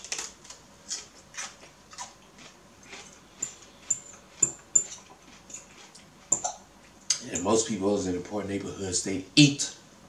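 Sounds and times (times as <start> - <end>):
person crunching celery: 0.0 - 6.4.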